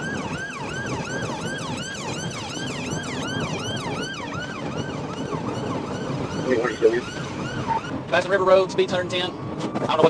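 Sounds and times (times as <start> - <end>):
police siren yelping: 0.0 - 8.0
car engine and road noise: 0.0 - 10.0.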